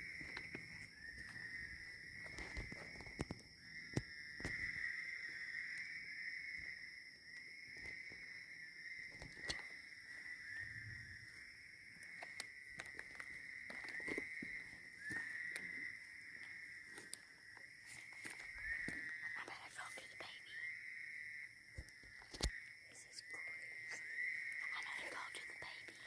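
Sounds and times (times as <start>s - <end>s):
rustles: 0.0s - 5.9s, 9.1s - 20.2s
insect chirps: 0.0s - 26.0s
insects droning: 0.0s - 26.0s
sharp clicks: 21.8s - 22.6s.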